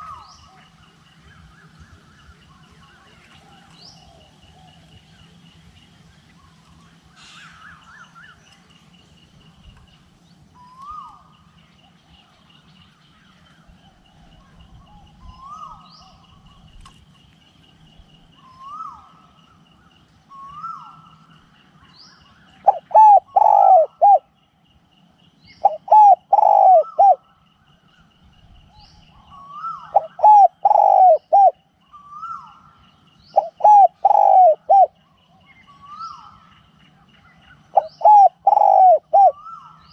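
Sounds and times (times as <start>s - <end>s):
dove cooing: 0.0s - 1.0s, 20.2s - 21.4s, 22.5s - 24.3s, 25.5s - 27.4s, 29.1s - 36.4s, 37.2s - 39.9s
birds calling softly: 0.0s - 39.9s.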